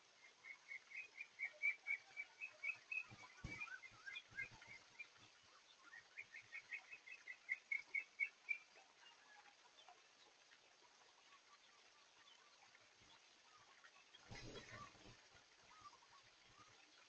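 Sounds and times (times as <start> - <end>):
bird chirping: 0.1 - 10.3, 11.3 - 17.0.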